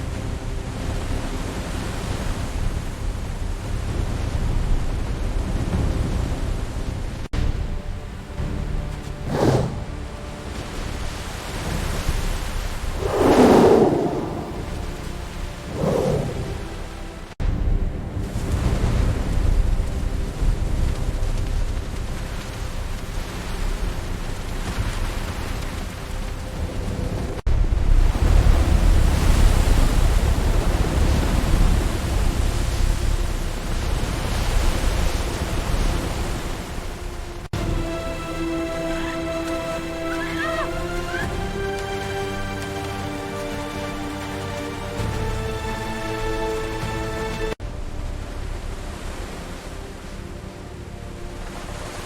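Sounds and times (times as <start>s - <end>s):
floodwater rushing: 8.0s - 17.4s, 33.8s - 52.0s
thunder rolling: 12.8s - 16.7s
heavy rain: 18.0s - 52.0s.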